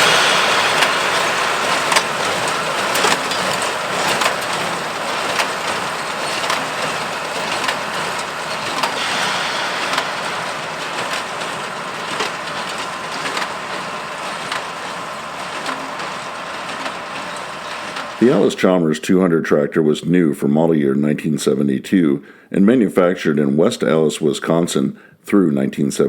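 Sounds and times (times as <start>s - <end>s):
hay baler clattering: 0.0s - 18.6s
tractor diesel engine under load: 0.0s - 18.6s.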